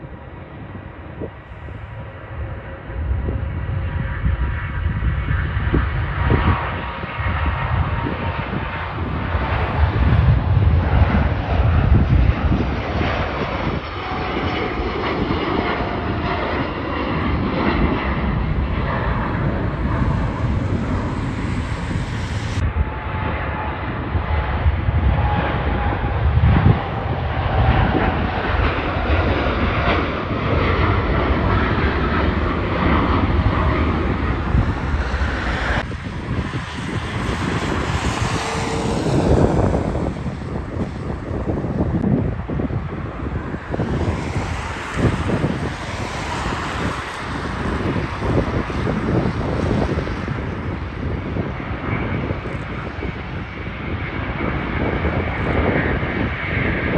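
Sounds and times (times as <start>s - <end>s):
jet engines rumbling: 0.0s - 56.9s.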